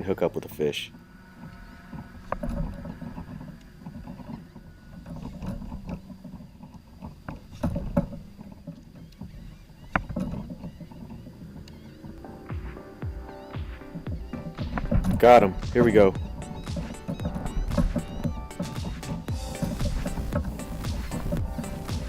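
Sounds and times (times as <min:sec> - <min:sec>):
low rumble: 0:00.7 - 0:06.6.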